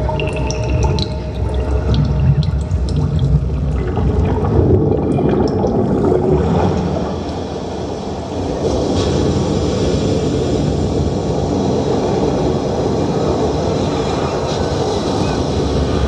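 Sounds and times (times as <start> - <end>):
heavy low rumble: 0.0 - 9.6.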